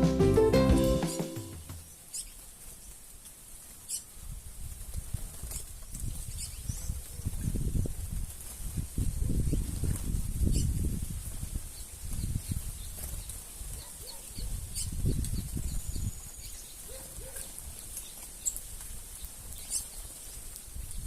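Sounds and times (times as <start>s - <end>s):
birds wings flapping: 12.8s - 13.6s.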